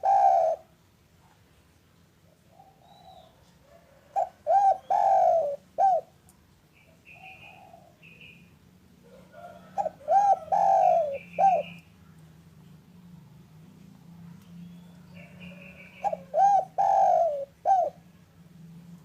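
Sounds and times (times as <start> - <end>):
soft coos: 0.0 - 0.7, 9.1 - 11.6, 15.0 - 18.2
dove cooing: 0.0 - 0.8, 2.3 - 6.2, 7.1 - 8.3, 9.0 - 11.8, 15.0 - 18.1.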